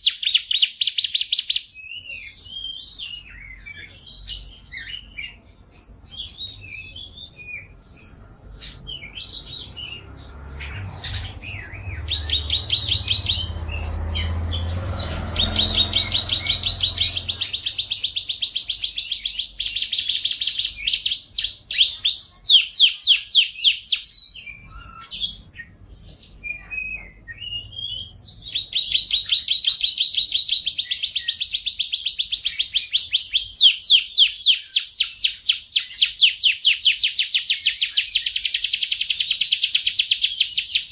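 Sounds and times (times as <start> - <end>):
canary singing trills: 0.0 - 40.9
low rumbling noise: 7.0 - 19.6.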